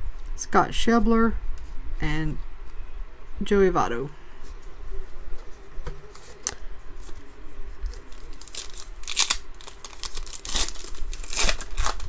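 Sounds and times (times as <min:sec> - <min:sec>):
foil wrapper tearing and crinkling: 0:07.9 - 0:12.0.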